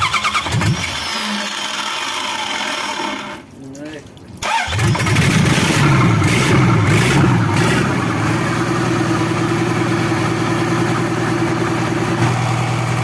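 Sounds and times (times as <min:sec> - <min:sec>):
forklift engine idling: 0:06.7 - 0:13.0.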